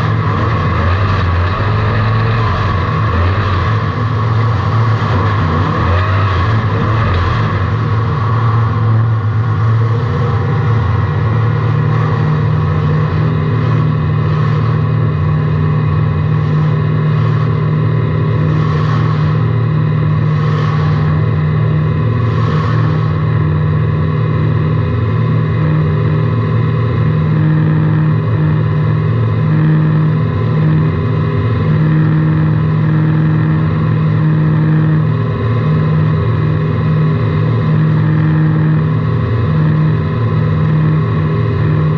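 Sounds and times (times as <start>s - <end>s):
race car engine running hard: 0.0s - 41.9s.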